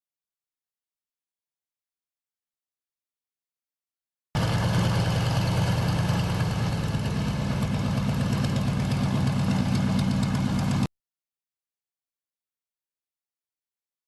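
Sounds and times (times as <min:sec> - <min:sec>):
engine idling: 0:04.4 - 0:10.9.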